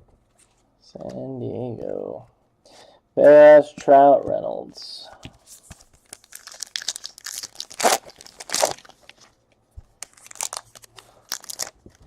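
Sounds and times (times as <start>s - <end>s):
foil wrappers tearing and crinkling: 6.0s - 9.3s, 10.0s - 12.0s.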